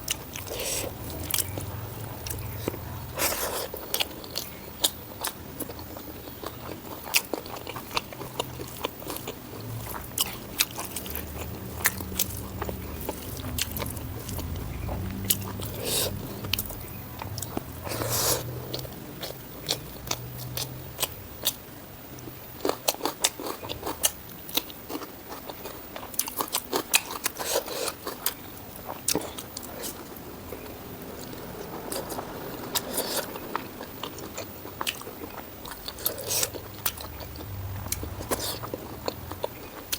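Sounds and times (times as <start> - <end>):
person chewing crunchy food: 0.0 - 39.9
low hum: 9.5 - 21.4, 29.2 - 39.9.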